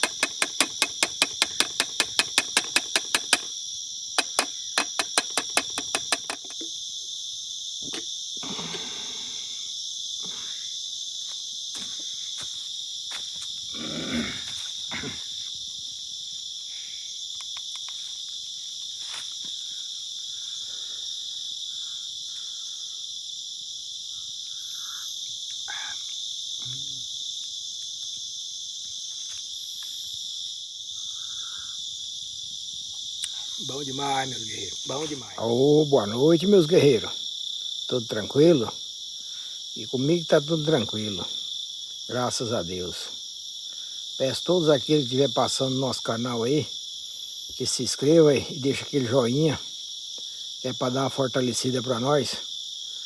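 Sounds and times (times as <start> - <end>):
fast sharp clicks: 0.0 - 3.5, 4.2 - 6.7
crickets and insects shrilling: 0.0 - 52.9.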